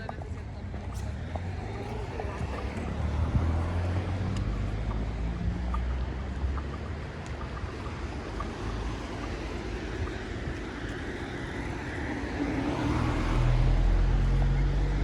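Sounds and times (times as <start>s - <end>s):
vehicle engine hum: 0.0s - 15.0s
tyres hissing on wet road: 8.1s - 15.0s.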